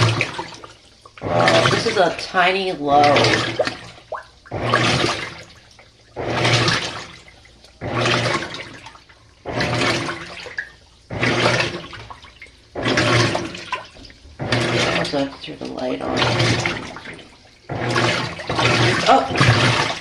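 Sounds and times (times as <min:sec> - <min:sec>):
low motor hum: 0:00.0 - 0:20.0
washing machine drum swishing water: 0:00.0 - 0:20.0.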